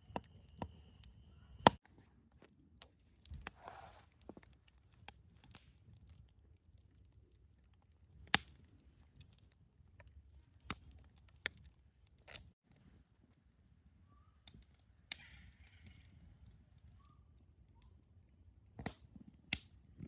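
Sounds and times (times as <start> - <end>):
campfire crackling: 0.0 - 20.0
sharp pops from burning wood: 4.2 - 12.9, 14.4 - 18.0, 18.6 - 20.0.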